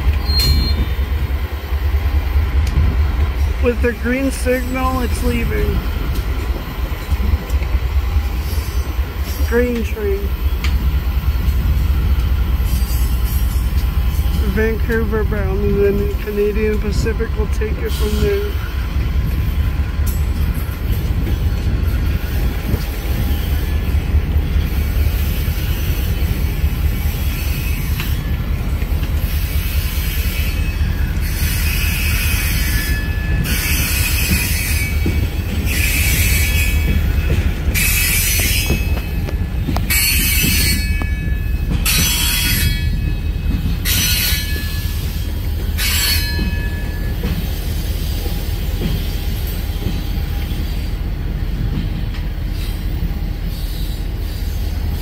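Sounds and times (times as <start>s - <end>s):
freight train rumbling past: 0.0s - 55.0s
wheel flanges squealing: 0.2s - 1.0s.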